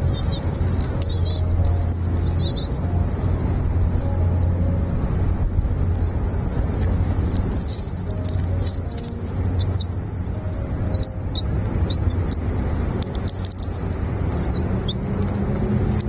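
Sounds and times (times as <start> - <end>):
small bird chirping: 0.0 - 2.8, 6.0 - 12.5
steady low rumble: 0.0 - 16.0.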